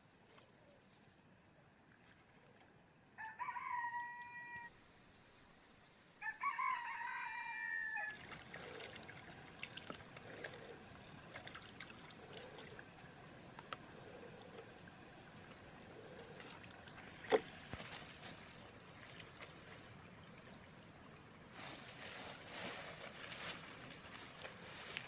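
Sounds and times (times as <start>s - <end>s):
rooster crowing: 3.2s - 4.7s, 6.2s - 8.2s.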